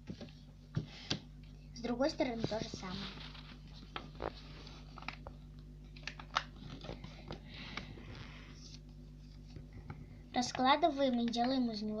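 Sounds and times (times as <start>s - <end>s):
paper crackling while folded: 2.2s - 5.3s
paper rustling: 2.2s - 9.9s.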